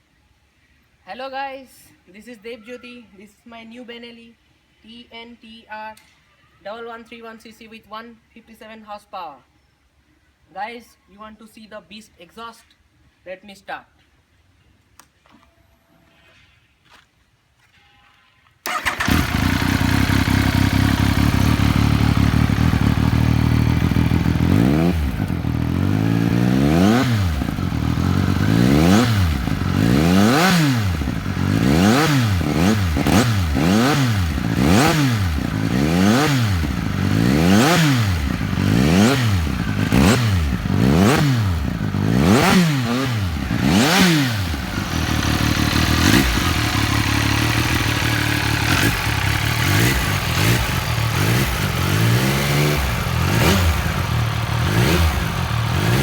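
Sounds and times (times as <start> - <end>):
motorcycle engine starting and revving: 18.6 - 56.0.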